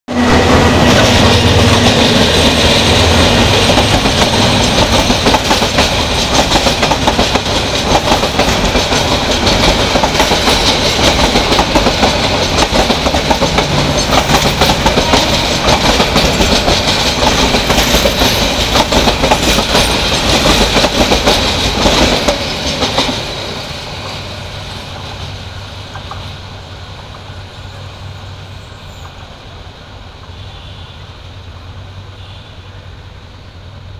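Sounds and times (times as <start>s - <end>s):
train rumble: 0.1s - 33.9s
train wheels clattering over joints: 0.4s - 26.4s.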